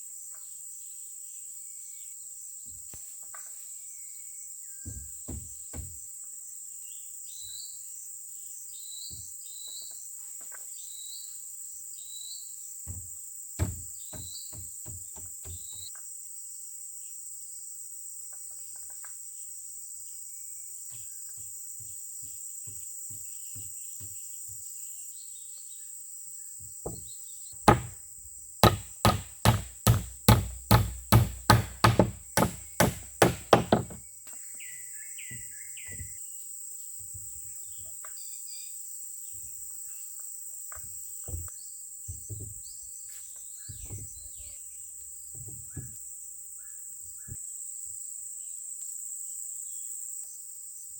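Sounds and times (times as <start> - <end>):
heavy blows on wood: 4.9 - 6.0, 12.9 - 15.9, 26.9 - 28.0, 28.6 - 34.0
insects droning: 16.6 - 37.8.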